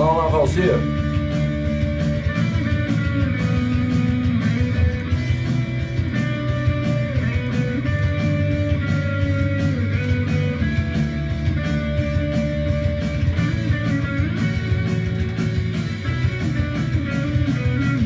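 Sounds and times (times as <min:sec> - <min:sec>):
rock music with guitar: 0:00.0 - 0:18.0.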